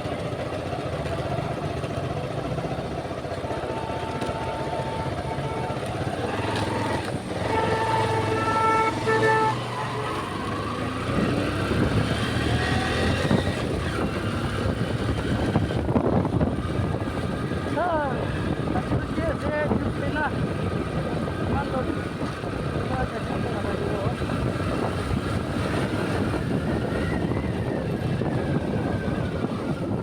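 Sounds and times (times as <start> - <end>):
traffic engines: 0.0 - 30.0
vehicle horns honking: 3.4 - 10.7.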